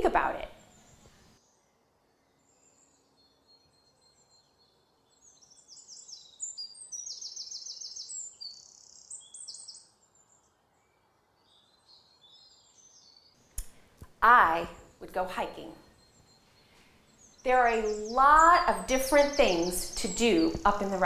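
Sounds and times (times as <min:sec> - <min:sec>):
birds chirping and singing: 0:05.4 - 0:09.8, 0:17.2 - 0:21.0.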